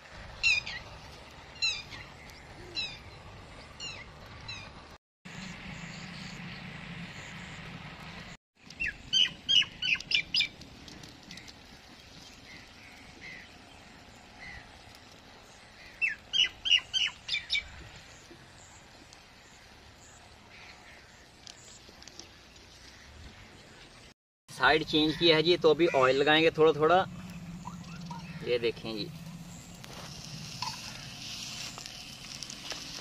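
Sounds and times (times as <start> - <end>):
faint outdoor background: 0.0 - 33.0.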